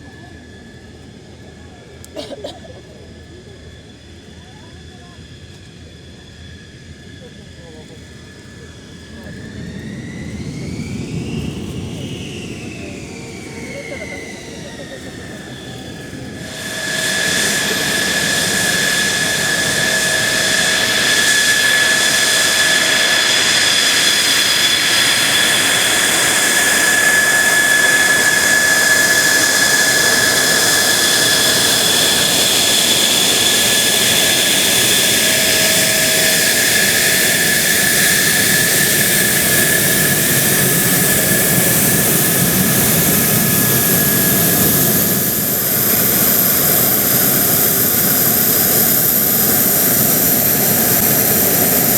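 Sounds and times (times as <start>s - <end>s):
jet engine whine: 0.0s - 51.9s.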